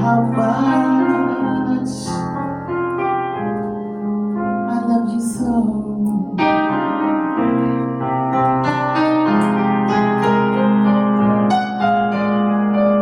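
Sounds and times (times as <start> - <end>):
person singing a ballad: 0.0 - 2.7, 4.4 - 7.2
piano playing slow chords: 0.0 - 13.0.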